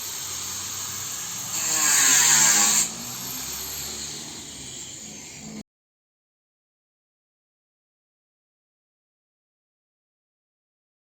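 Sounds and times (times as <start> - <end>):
power tool running: 0.0 - 5.6.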